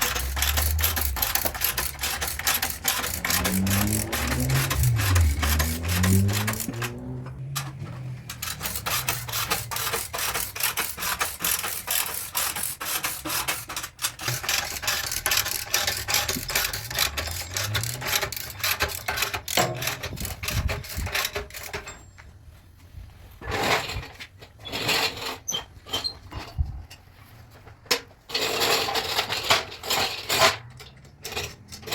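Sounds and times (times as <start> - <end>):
rasping sanding strokes on metal: 0.0 - 6.9, 8.3 - 21.3.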